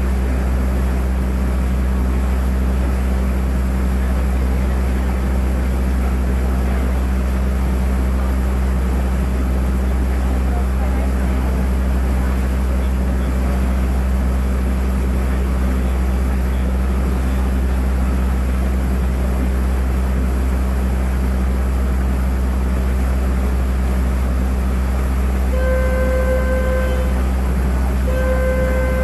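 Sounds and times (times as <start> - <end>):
boat engine droning: 0.0 - 29.0
horn sounding held note: 25.5 - 27.4, 28.0 - 29.0.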